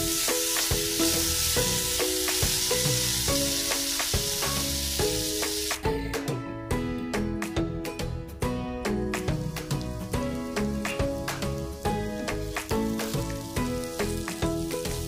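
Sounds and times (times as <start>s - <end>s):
potatoes sizzling in oil: 0.0s - 6.0s, 9.2s - 15.0s
background music: 0.0s - 15.0s.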